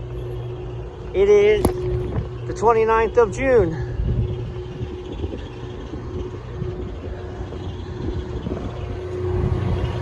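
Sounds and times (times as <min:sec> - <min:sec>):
air conditioning machine hum: 0:00.0 - 0:10.0.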